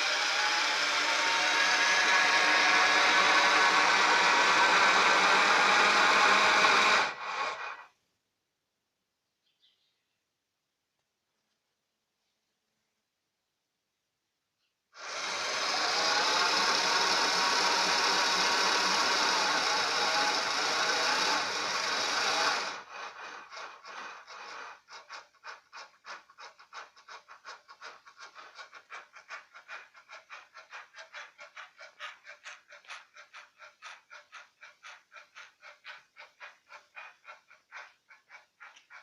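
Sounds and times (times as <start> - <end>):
stepper motor pulsing: 0.0 - 7.8, 15.0 - 32.9.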